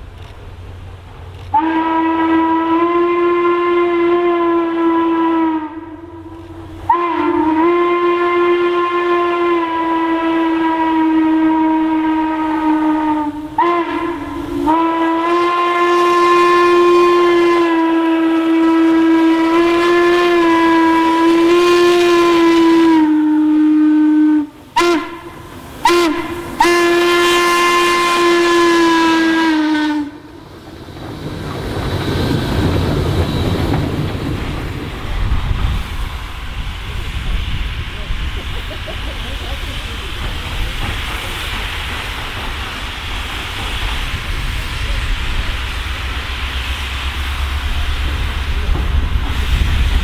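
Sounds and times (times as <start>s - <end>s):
train rumbling past: 0.0s - 50.0s
steam locomotive whistle: 1.5s - 30.4s.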